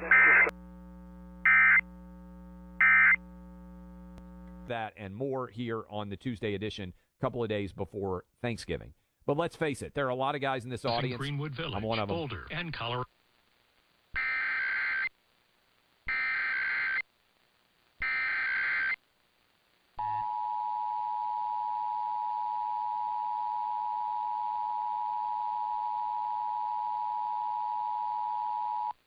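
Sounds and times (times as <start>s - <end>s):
warbling data tone bursts: 0.0s - 0.5s.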